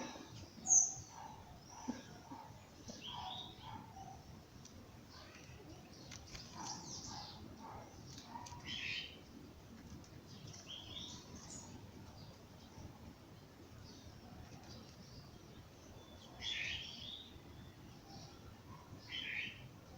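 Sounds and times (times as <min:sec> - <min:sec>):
birds chirping and trilling: 0:00.0 - 0:04.4, 0:05.0 - 0:09.4, 0:10.2 - 0:19.7.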